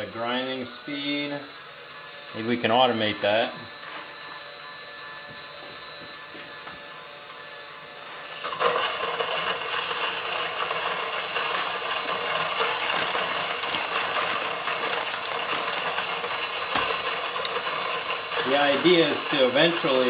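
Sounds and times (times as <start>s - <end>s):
drill motor whine: 0.0s - 20.0s
coffee beans crunching in grinder: 8.2s - 20.0s.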